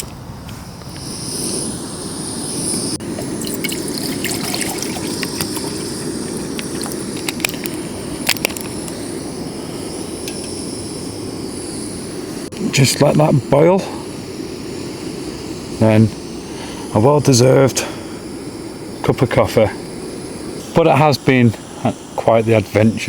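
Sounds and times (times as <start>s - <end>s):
gas stove burner hissing: 0.0s - 23.0s.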